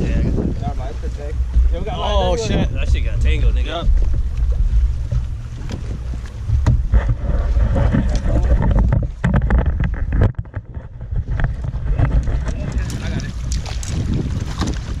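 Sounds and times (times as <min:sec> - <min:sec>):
strong wind buffeting microphone: 0:00.0 - 0:15.0
scattered clicks and knocks: 0:07.8 - 0:12.6.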